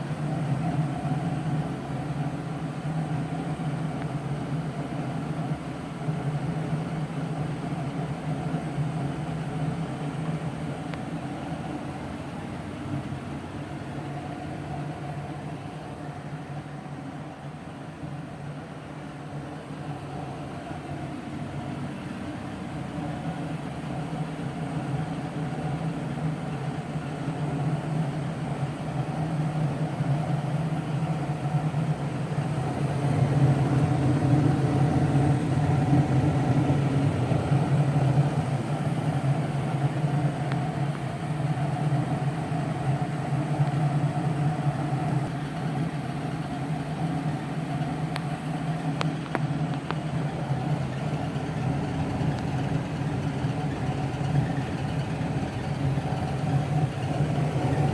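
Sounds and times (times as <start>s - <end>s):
furnace humming: 0.0s - 57.9s.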